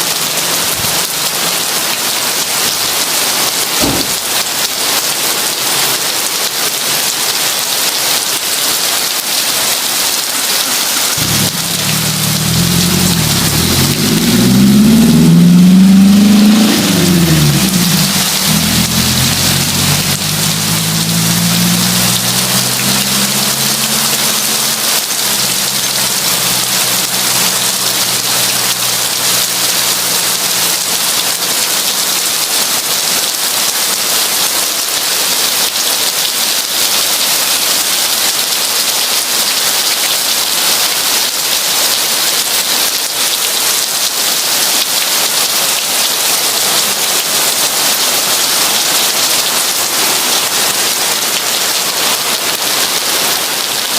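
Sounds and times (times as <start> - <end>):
heavy rain falling: 0.0 - 53.9
low rumble: 11.2 - 29.7.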